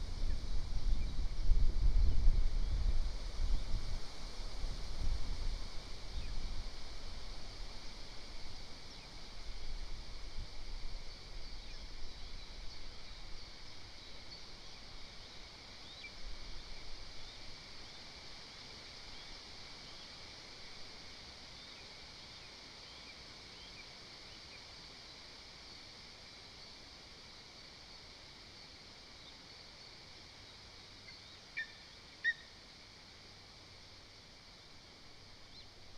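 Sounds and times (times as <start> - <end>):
wind gusting on microphone: 0.0 - 6.6
steady high hiss: 0.0 - 35.9.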